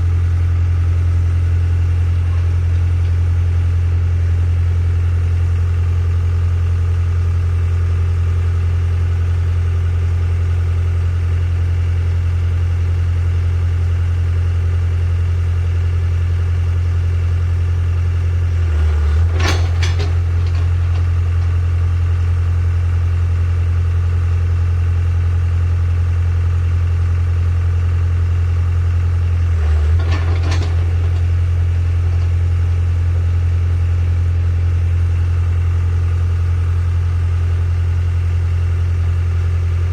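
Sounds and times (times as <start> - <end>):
excavator diesel engine idling: 0.0 - 39.9
clattering noise: 18.6 - 21.8, 29.4 - 32.4.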